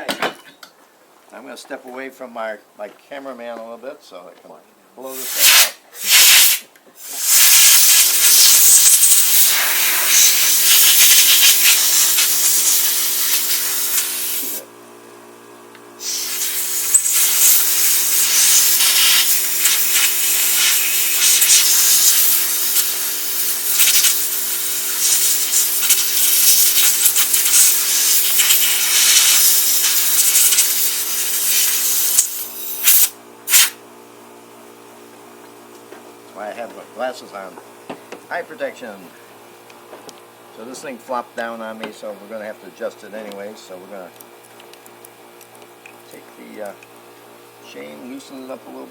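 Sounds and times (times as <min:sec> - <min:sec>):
compressed air hissing from nozzle: 0:05.1 - 0:14.6, 0:16.0 - 0:33.8.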